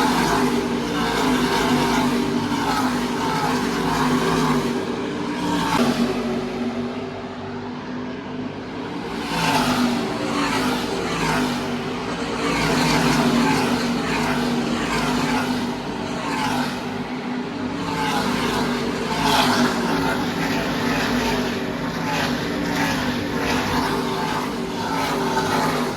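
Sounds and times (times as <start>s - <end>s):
steady engine drone: 0.0s - 25.9s
race trucks passing: 8.6s - 25.9s.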